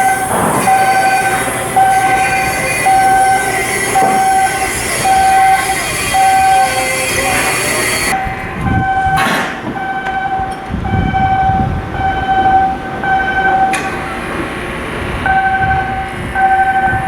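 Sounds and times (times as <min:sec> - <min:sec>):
loud hiss: 0:00.0 - 0:08.2
electronic alarm beeping: 0:00.0 - 0:14.2, 0:15.2 - 0:17.0
low machinery rumble: 0:00.0 - 0:17.0.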